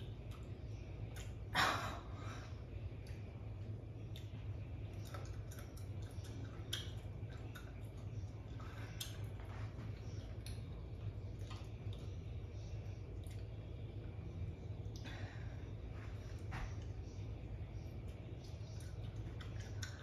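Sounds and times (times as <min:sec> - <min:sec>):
steady low hum: 0:00.0 - 0:20.0
chewing mouth noises: 0:04.0 - 0:13.7, 0:18.1 - 0:20.0.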